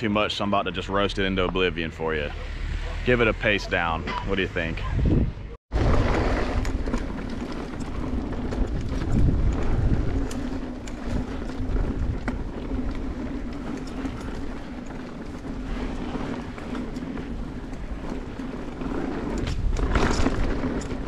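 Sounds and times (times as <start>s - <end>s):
bike rattles and clicks: 0.0s - 21.0s
wind on microphone: 4.7s - 16.8s
bike tyre rumble on dirt: 4.8s - 21.0s.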